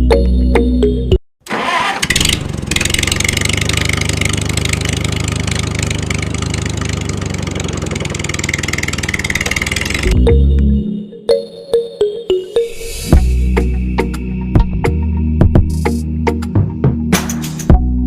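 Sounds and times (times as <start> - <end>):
music: 0.0 - 1.2, 10.1 - 18.0
small tractor motor running: 1.5 - 10.2.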